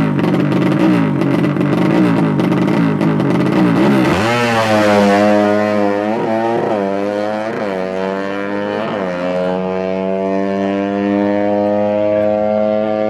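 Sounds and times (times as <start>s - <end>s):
motorcycle engine at full throttle: 0.0s - 13.0s.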